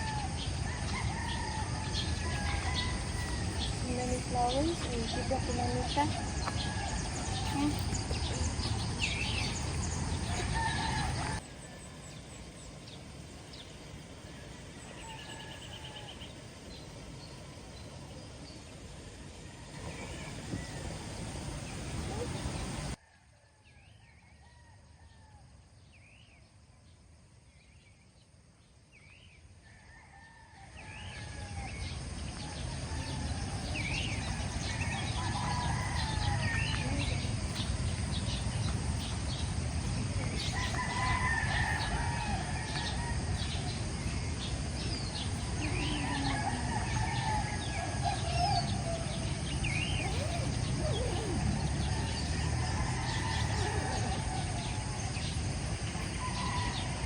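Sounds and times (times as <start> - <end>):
rooster crowing: 0.0 - 4.1, 5.1 - 8.2, 10.1 - 11.8, 14.3 - 16.3, 29.6 - 37.2, 40.3 - 44.1, 44.7 - 57.0
steady background noise: 0.0 - 23.0, 29.5 - 57.0
small birds chirping: 0.3 - 11.4, 42.7 - 55.5.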